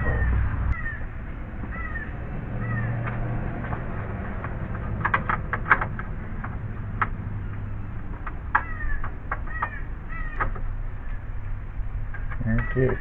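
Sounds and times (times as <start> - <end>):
crows cawing: 0.0 - 3.3, 8.4 - 11.3, 12.4 - 13.0
sharp clicks and knocks: 2.8 - 11.2, 12.0 - 13.0.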